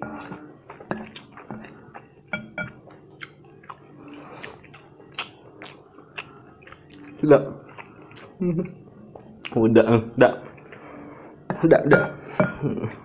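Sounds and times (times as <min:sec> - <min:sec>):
person chewing noodles: 0:00.1 - 0:09.6.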